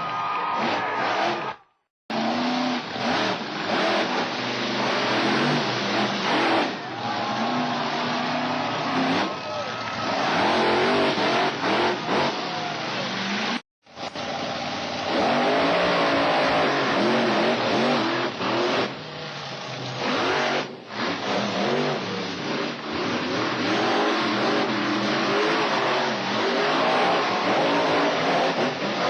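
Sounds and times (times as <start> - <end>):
monster truck engine revving: 0.4 - 29.0.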